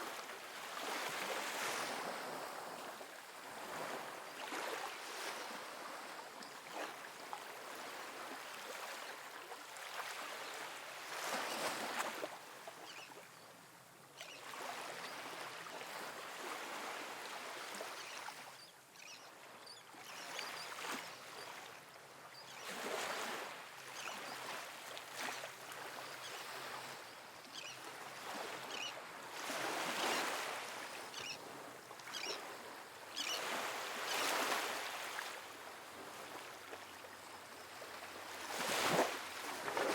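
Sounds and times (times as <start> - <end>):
small waves breaking on beach: 0.0 - 13.6, 14.2 - 39.9.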